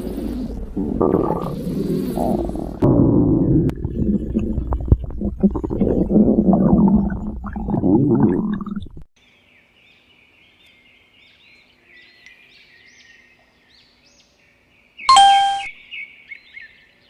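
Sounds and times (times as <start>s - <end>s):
bird chirping: 9.2s - 17.0s
loud pitched tone: 15.1s - 15.8s.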